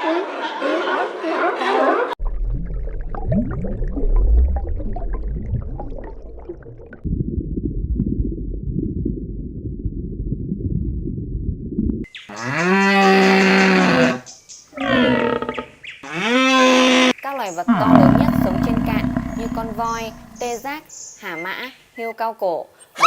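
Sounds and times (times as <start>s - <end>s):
deep animal calls: 12.3s - 17.1s, 17.7s - 20.5s.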